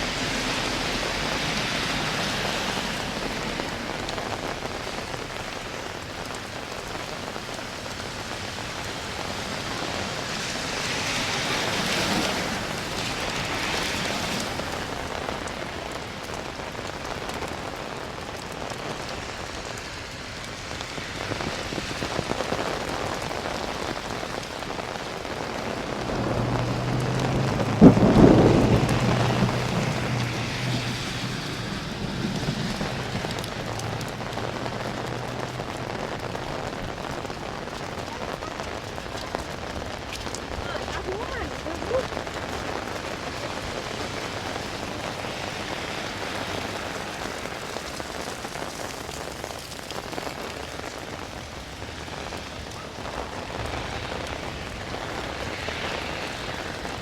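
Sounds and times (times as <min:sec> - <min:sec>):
steady rain on streets: 0:00.0 - 0:57.0
thunderclap rumbling: 0:20.8 - 0:57.0.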